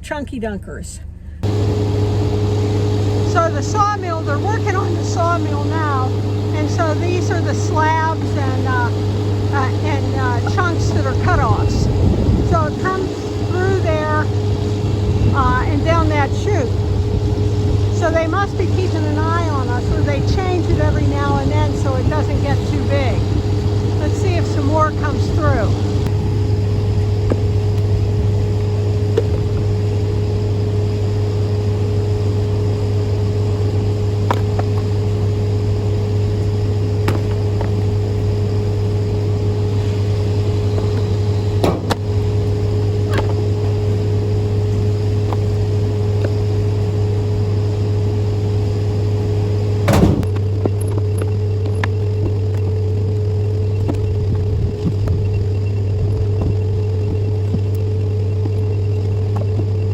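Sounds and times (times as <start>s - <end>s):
sawmill machinery droning: 1.3s - 59.9s
sharp knocks: 41.6s - 42.0s.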